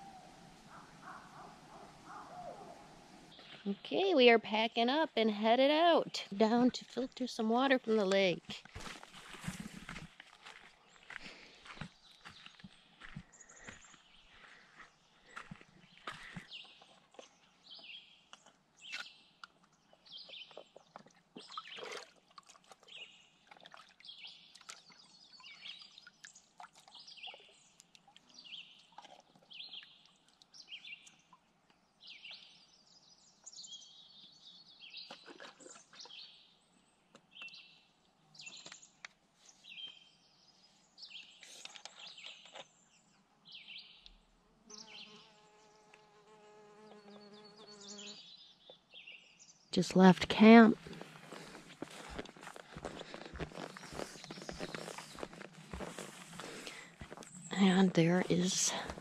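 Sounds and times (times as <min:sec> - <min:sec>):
low steady buzz: 0:00.0 - 0:04.0
birds chirping: 0:00.0 - 0:08.4, 0:49.8 - 0:59.0.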